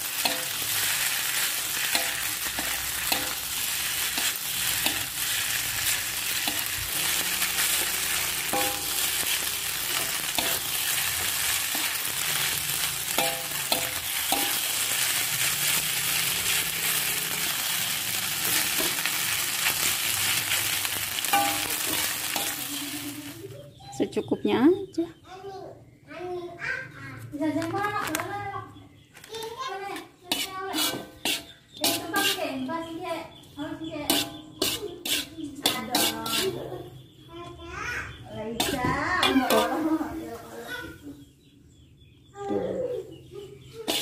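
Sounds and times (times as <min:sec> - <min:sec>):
metal spatula scraping pan: 0:00.0 - 0:23.2, 0:30.3 - 0:32.7, 0:34.0 - 0:36.7, 0:38.6 - 0:40.1
food sizzling in a wok: 0:00.0 - 0:23.6, 0:30.3 - 0:32.7, 0:34.1 - 0:36.6, 0:38.6 - 0:40.6.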